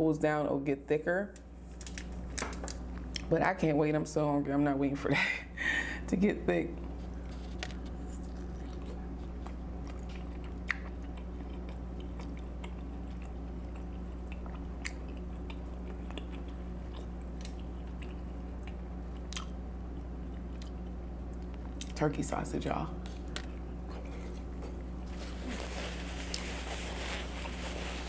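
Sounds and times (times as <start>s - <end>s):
steady low hum: 0.0s - 28.0s
person chewing food: 6.8s - 22.0s, 23.0s - 28.0s
wet mouth clicks and smacks: 9.9s - 12.8s.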